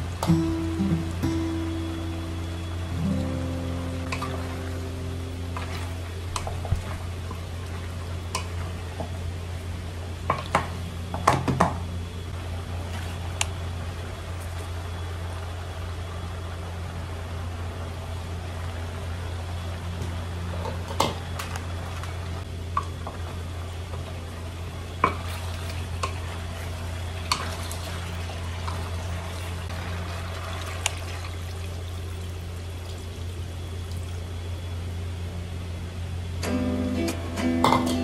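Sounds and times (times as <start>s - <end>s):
steady low hum: 0.0s - 38.0s
liquid pouring into pot: 27.2s - 34.3s.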